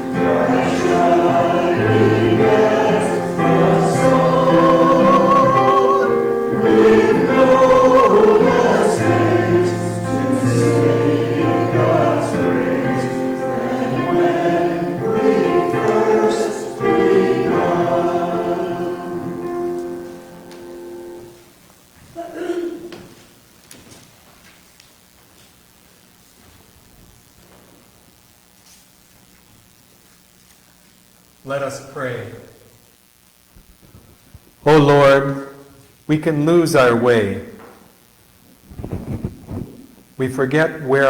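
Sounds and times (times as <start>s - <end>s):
group singing a hymn: 0.0s - 21.3s
piano accompaniment: 0.0s - 21.4s.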